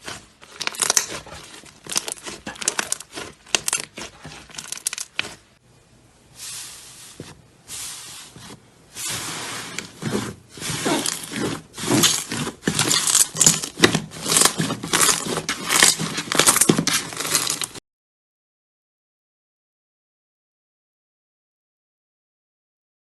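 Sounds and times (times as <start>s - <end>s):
wet squishing and tearing: 0.0s - 5.4s, 10.6s - 17.8s
hands squishing slime: 0.0s - 5.6s.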